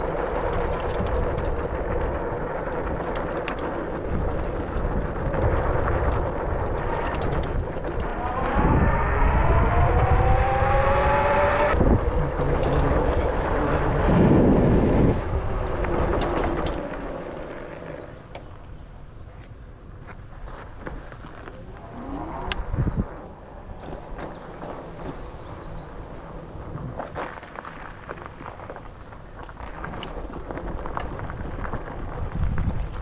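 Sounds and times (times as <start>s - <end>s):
wind rushing over microphone: 0.0s - 27.3s, 29.2s - 33.0s
electric motor whine: 6.9s - 17.9s.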